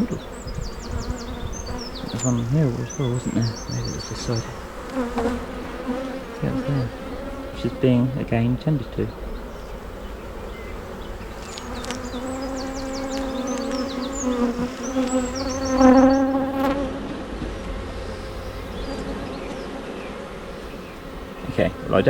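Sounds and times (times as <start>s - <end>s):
bees buzzing: 0.0s - 22.0s.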